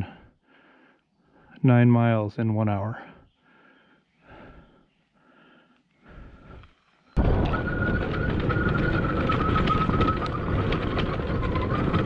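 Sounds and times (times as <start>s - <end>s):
faint breaths: 0.0s - 1.6s, 2.8s - 7.2s
small rattles: 7.2s - 12.0s
wind noise on microphone: 7.2s - 12.0s.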